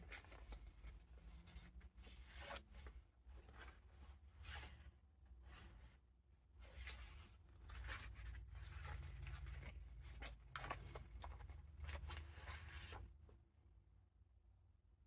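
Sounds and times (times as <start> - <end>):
paper rustling: 6.6 - 13.2.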